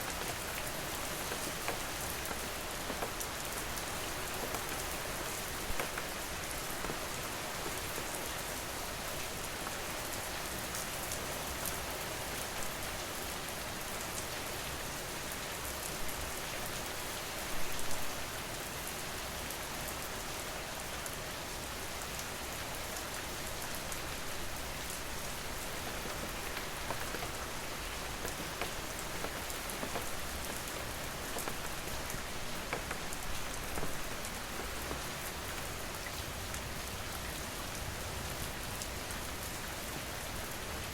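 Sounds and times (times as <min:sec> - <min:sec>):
raindrops ticking: 0:00.0 - 0:08.4, 0:23.9 - 0:36.2
loud rain spatter: 0:00.0 - 0:19.4, 0:21.6 - 0:40.9
rain falling: 0:00.0 - 0:40.9.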